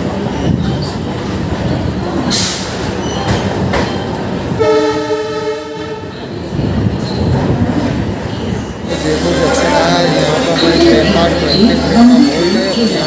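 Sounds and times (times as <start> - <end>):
train horn blast: 4.6 - 6.1.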